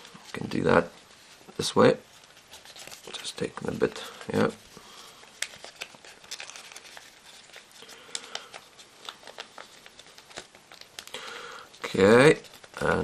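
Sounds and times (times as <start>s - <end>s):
paper being folded: 0.0s - 13.0s.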